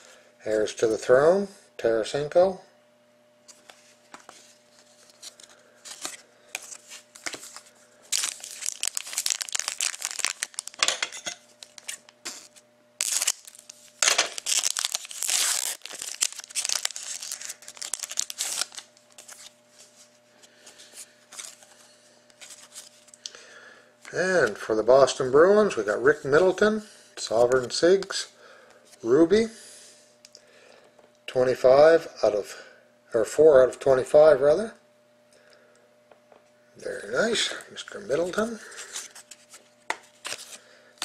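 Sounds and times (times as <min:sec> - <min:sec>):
wrapper tearing and crinkling: 0:05.0 - 0:19.6, 0:21.3 - 0:21.8, 0:22.4 - 0:23.2, 0:40.1 - 0:40.6.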